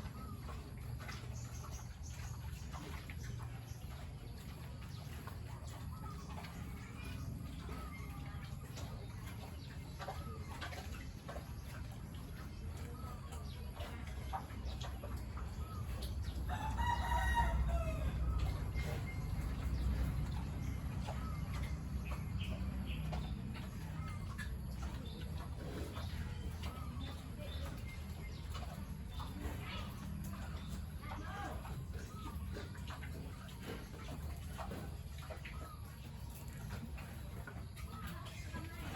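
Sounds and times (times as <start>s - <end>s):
steady low rumble: 11.1s - 35.2s
rooster crowing: 16.5s - 18.1s.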